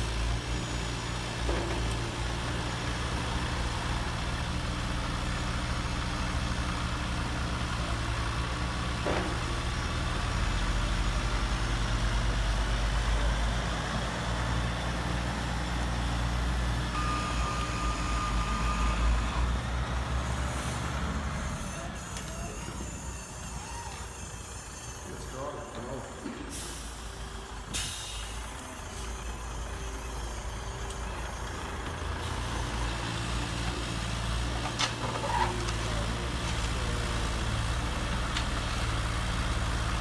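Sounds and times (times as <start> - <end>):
heavy truck engine running: 0.0 - 40.0
held high tone: 17.0 - 19.5.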